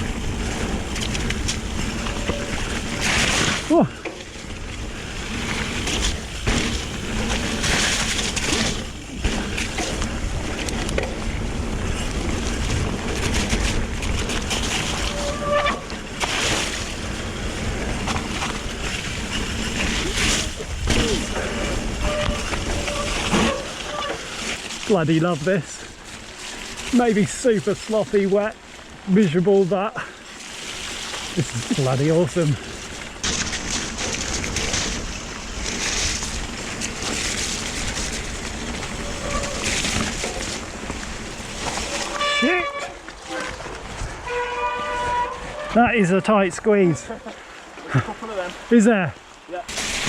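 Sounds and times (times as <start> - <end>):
wind buffeting microphone: 0.0 - 3.7, 4.4 - 23.8
tyres rolling through mud: 0.0 - 50.0.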